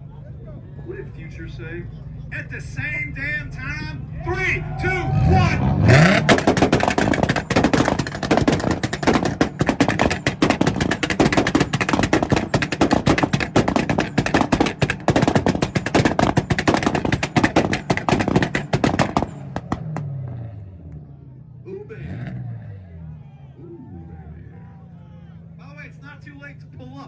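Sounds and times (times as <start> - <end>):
exhaust pops and bangs: 5.3 - 20.5.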